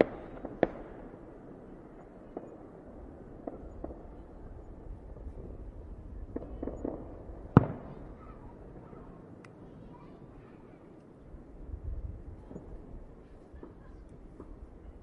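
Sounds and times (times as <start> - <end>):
fireworks popping: 0.0 - 1.2, 3.4 - 8.9
loud sharp firework bang: 6.3 - 9.0.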